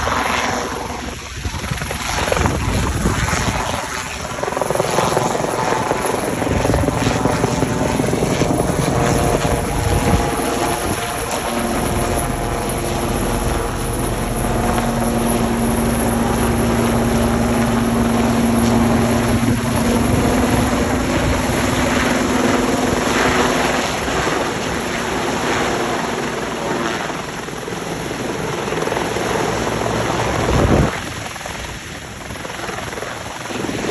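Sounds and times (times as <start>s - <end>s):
helicopter rotor and engine: 0.0s - 33.9s
steady hum: 5.9s - 25.6s.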